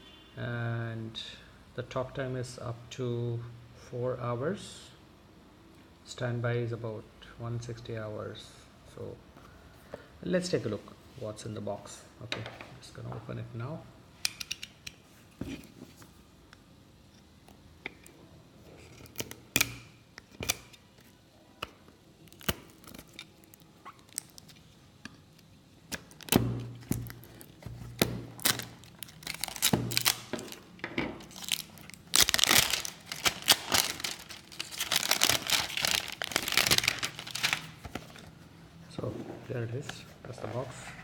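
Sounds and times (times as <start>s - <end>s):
packaging clicks and snaps: 19.0s - 30.6s, 31.2s - 38.3s
wrapping tearing and crinkling: 22.2s - 38.3s.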